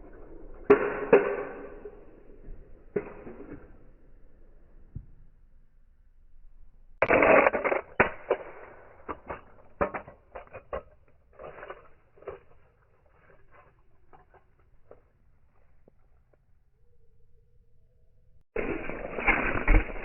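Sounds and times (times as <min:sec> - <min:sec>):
toy cars crashing together: 0:07.0 - 0:14.6, 0:18.6 - 0:20.0
small parts clicking and rattling: 0:07.0 - 0:15.2.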